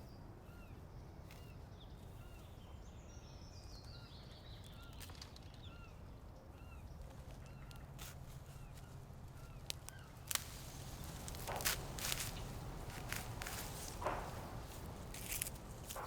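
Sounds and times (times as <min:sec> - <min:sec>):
birds chirping: 0:08.5 - 0:16.0.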